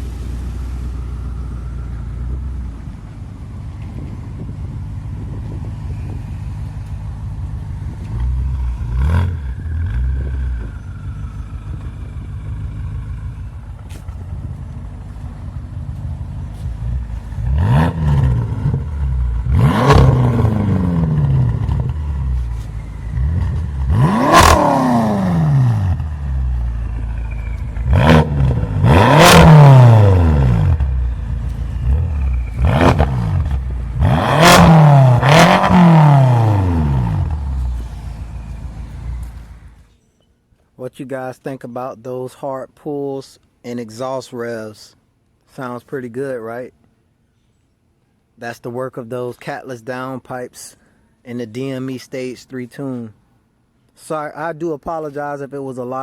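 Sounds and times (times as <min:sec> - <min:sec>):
car exhaust rumble: 0:00.0 - 0:39.9
quick exhaust revs: 0:05.1 - 0:39.9.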